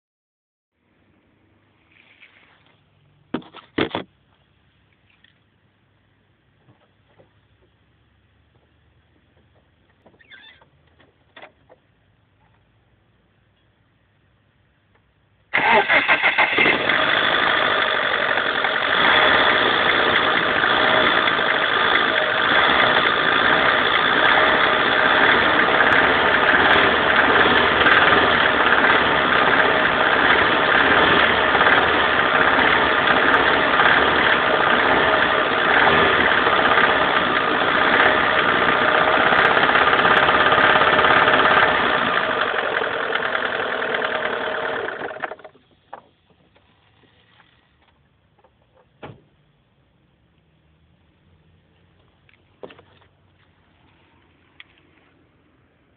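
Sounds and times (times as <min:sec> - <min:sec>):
car engine starting and running: 0:15.4 - 0:53.5.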